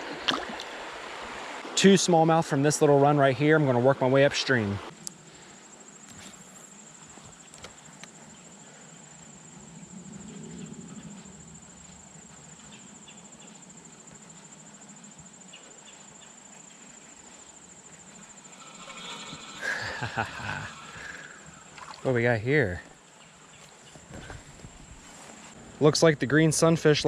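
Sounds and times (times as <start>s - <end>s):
insect trilling: 14.4s - 23.4s.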